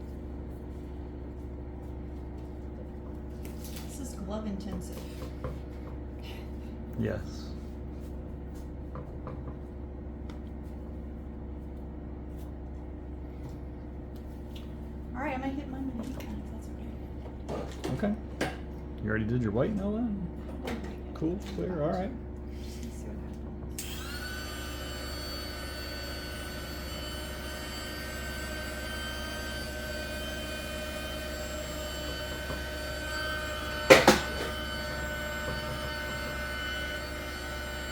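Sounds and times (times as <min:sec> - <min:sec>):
low machine hum: 0:00.0 - 0:37.9
heat gun motor whine: 0:23.7 - 0:37.9.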